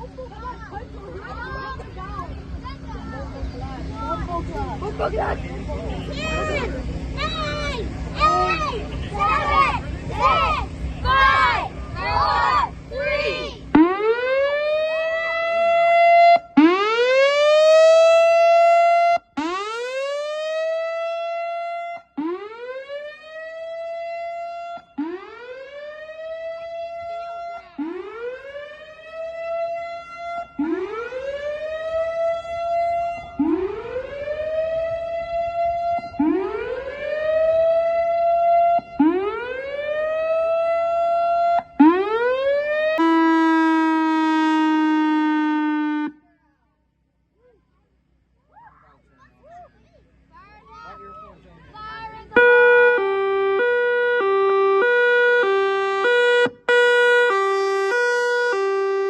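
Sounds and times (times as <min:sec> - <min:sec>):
outdoor warning siren whooping: 0:06.1 - 0:46.2, 0:52.3 - 0:59.0.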